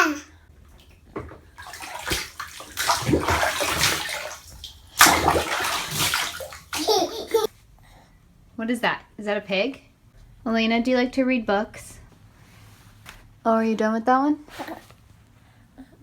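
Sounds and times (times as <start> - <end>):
water sloshing in bathtub: 0.6 - 7.5, 14.5 - 15.0.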